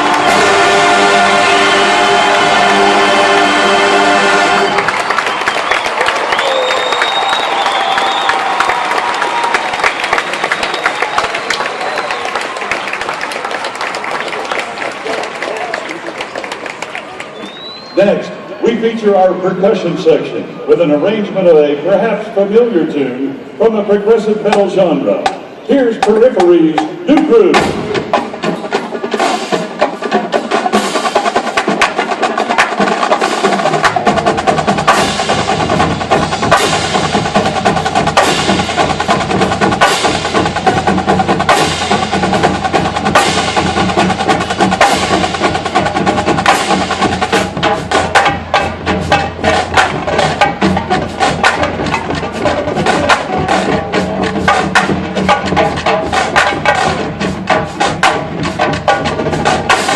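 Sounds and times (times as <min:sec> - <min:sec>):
low heavy drum layer: 0:00.0 - 0:04.6, 0:24.3 - 0:59.9
marching drums playing: 0:00.0 - 0:05.8, 0:24.5 - 0:59.9.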